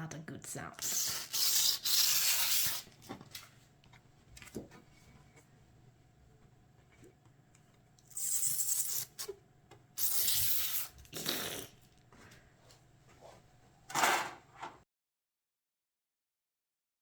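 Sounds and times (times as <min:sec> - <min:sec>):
plastic film tearing off: 0:00.8 - 0:03.1.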